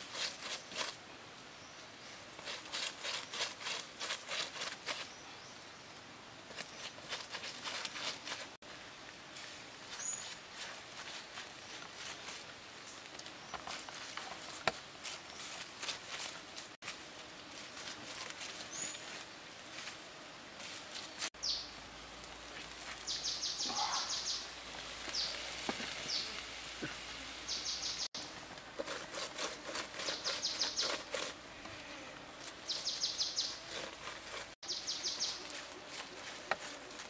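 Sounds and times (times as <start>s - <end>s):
bird chirps: 23.1s - 24.5s, 27.5s - 28.1s, 30.1s - 31.0s, 32.7s - 33.6s, 34.6s - 35.4s.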